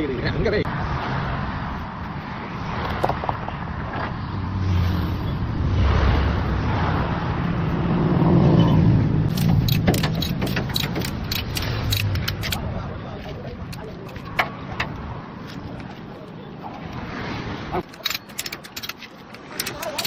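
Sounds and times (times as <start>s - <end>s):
sharp clicks or rattles: 9.3s - 12.6s, 17.8s - 20.0s.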